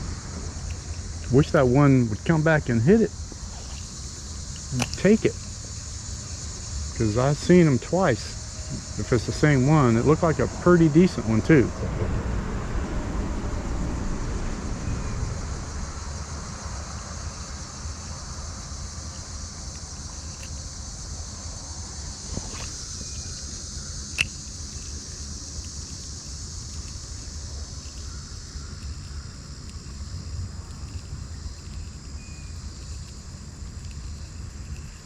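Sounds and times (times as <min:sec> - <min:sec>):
constant high hiss: 0:00.0 - 0:35.0
creek low rumble: 0:00.0 - 0:35.0
sharp click: 0:04.5 - 0:05.1.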